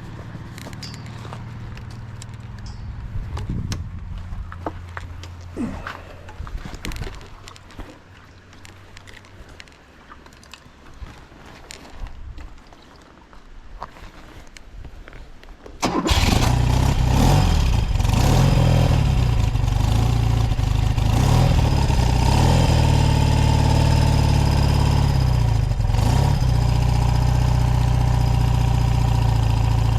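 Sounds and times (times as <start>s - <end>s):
motorcycle engine starting and idling: 0.0s - 7.2s, 15.8s - 29.9s.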